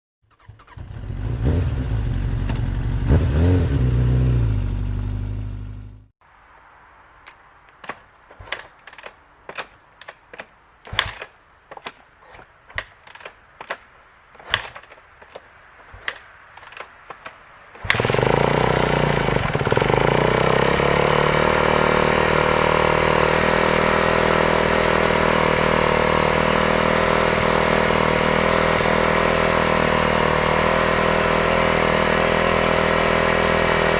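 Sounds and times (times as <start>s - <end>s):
motorcycle engine: 0.2s - 6.1s, 14.4s - 33.9s
sharp irregular clacks: 7.2s - 20.9s.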